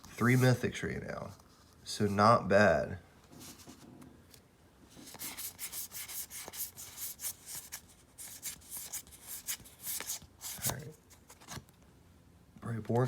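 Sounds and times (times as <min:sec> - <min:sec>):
trading cards sliding and rubbing: 0:03.3 - 0:04.0, 0:04.9 - 0:11.6.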